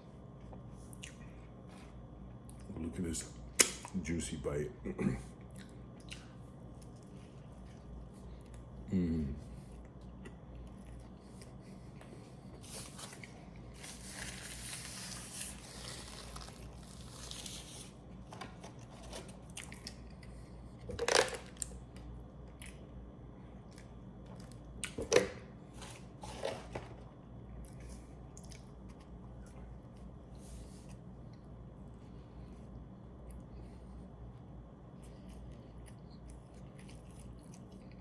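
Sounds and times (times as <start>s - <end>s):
close chewing of burger: 32.6s - 38.0s.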